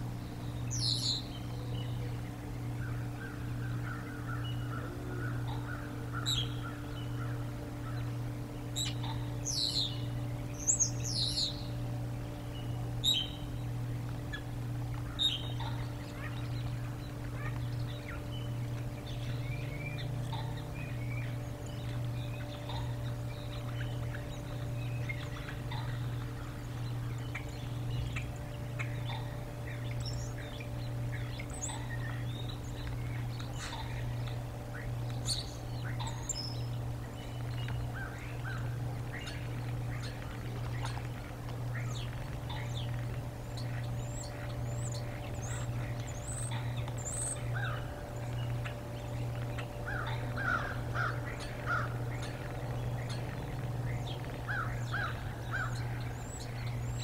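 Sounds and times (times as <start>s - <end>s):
steady low hum: 0.0s - 57.0s
wild birds chirping: 0.0s - 57.0s.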